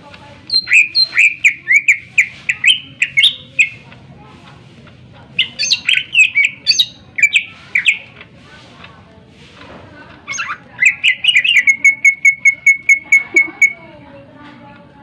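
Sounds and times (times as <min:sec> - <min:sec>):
bird singing whistled phrases: 0:00.5 - 0:03.8, 0:05.4 - 0:08.0, 0:10.3 - 0:13.8.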